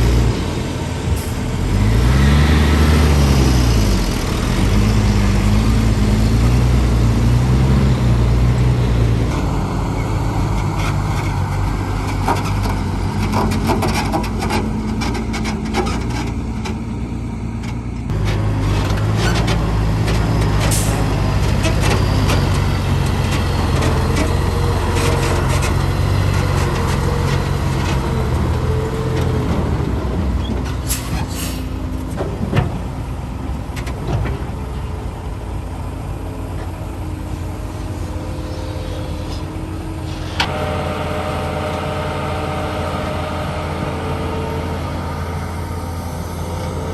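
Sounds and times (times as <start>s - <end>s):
diesel engine drone: 0.0s - 46.9s
machinery clanks and knocks: 10.4s - 17.0s, 17.6s - 35.3s.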